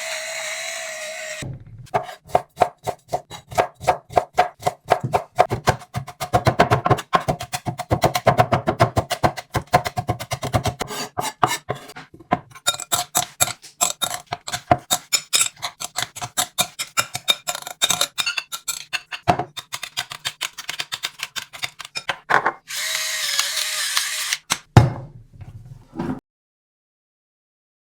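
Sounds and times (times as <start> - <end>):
knife chopping on cutting board: 1.9 - 22.6.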